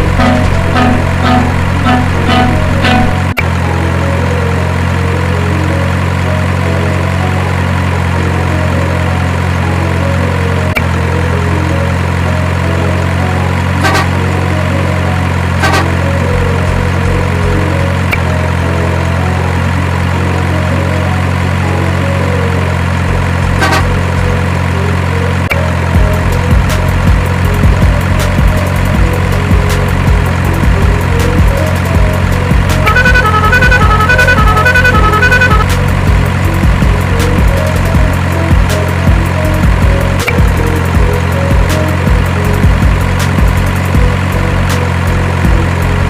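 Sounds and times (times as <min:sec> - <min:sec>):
heavy truck engine idling: 0:00.0 - 0:46.0.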